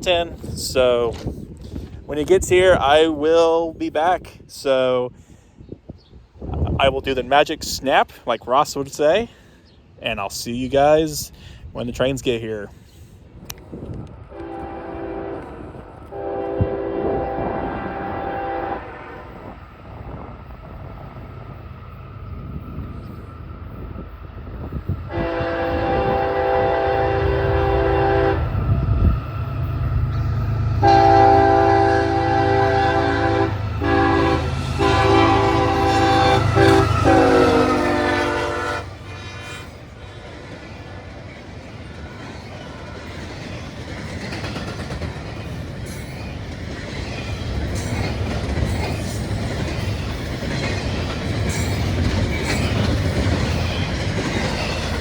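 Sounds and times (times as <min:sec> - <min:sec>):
train wheels clickety-clack rumble: 0:13.4 - 0:55.0
locomotive air horn chord: 0:14.3 - 0:19.3, 0:25.1 - 0:28.6, 0:30.8 - 0:40.3.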